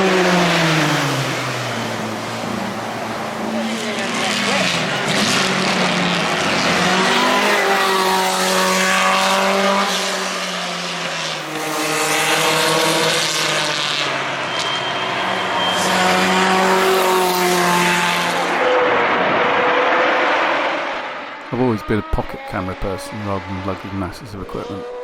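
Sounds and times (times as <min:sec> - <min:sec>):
racing car engines passing: 0:00.0 - 0:25.0.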